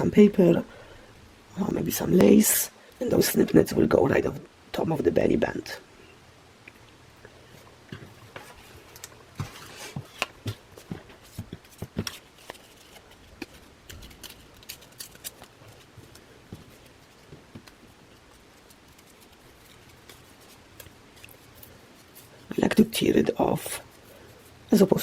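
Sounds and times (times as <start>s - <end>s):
paper crackling: 8.3s - 25.0s.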